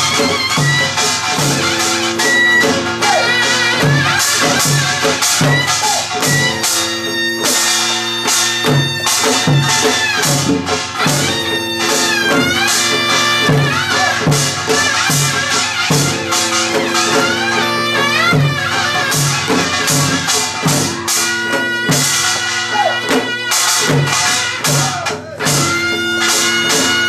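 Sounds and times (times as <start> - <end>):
double-reed wind melody: 0.0 - 24.7, 25.6 - 27.0
drum strokes: 0.0 - 27.0.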